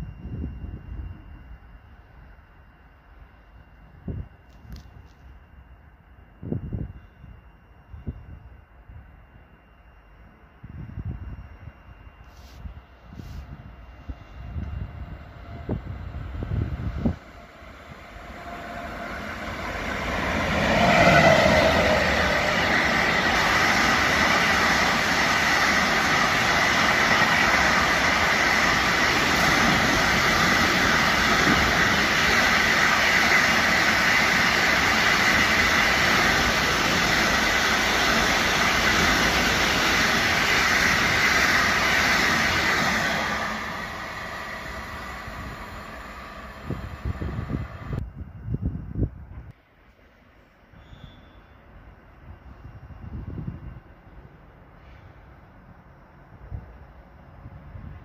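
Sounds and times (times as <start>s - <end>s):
freight train passing: 0.0s - 58.0s
high steady tone: 5.2s - 49.0s
wheels rushing on rail: 10.2s - 58.0s.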